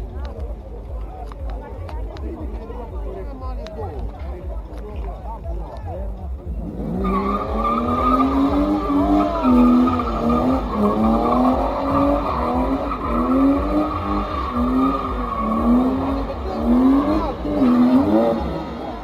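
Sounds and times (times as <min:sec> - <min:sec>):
car engine revving: 0:06.2 - 0:19.0
high-pitched tyre squeal: 0:06.6 - 0:19.0.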